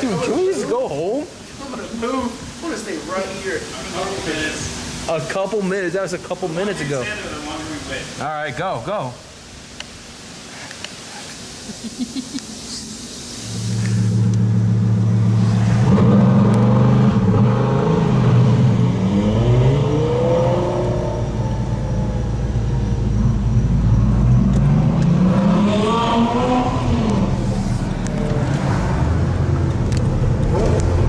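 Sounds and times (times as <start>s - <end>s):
sports car engine revving: 13.4s - 31.0s.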